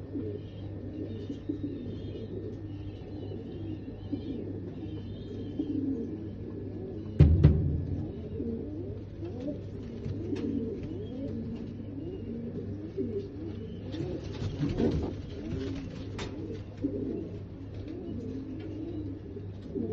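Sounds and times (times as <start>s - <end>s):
pigeons cooing: 0.0s - 19.9s.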